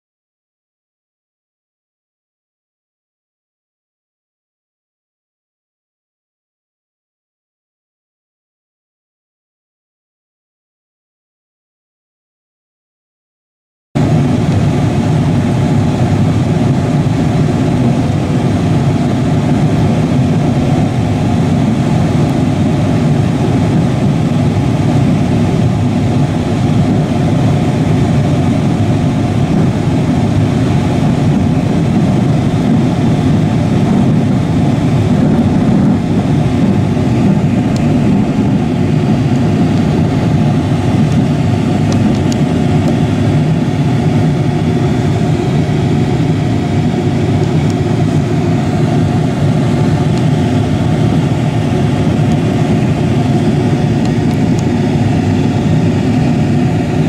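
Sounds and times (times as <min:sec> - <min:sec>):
freight train wheels rumbling: 0:14.0 - 0:57.0.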